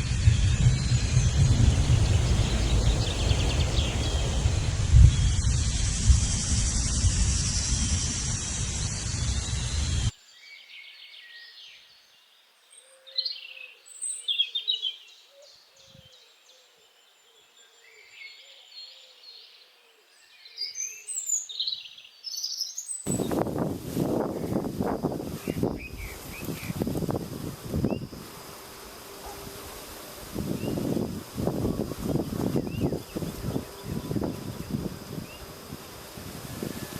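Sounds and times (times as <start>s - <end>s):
loud rushing noise: 0.0s - 10.1s, 23.1s - 36.9s
birds chirping and trilling: 0.0s - 36.9s.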